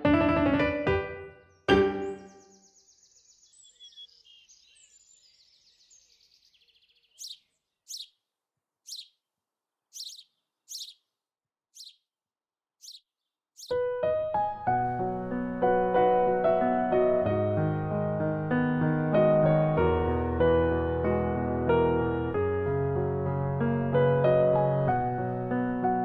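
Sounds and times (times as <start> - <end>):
piano music: 0.0 - 2.4, 13.7 - 26.0
birds twittering: 1.5 - 11.1, 11.8 - 12.1, 12.8 - 13.8
sharp downward-sweeping bird calls: 2.0 - 8.2, 8.8 - 9.2, 9.9 - 11.1, 11.8 - 12.0, 12.8 - 13.8.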